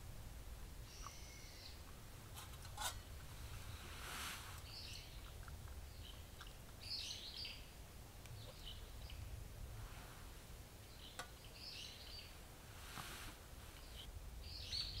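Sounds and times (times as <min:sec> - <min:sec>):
faint low rumble: 0:00.0 - 0:15.0
small birds chirping: 0:00.8 - 0:09.4, 0:10.8 - 0:12.6, 0:13.7 - 0:15.0.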